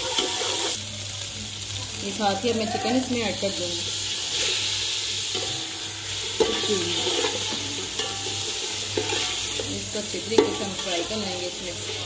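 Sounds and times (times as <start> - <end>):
chicken sizzling in a pot: 0.0 - 12.0
metal spoon scraping a pot: 5.3 - 12.0.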